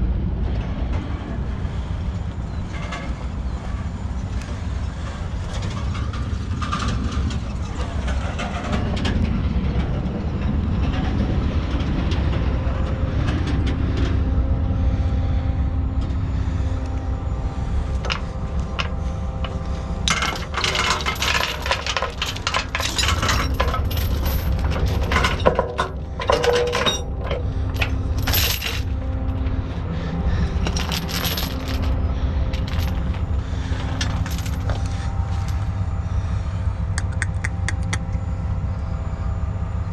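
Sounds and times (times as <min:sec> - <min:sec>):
diesel truck engine running: 0:00.2 - 0:39.9
metallic jingling rattles: 0:18.8 - 0:28.9, 0:30.6 - 0:35.6.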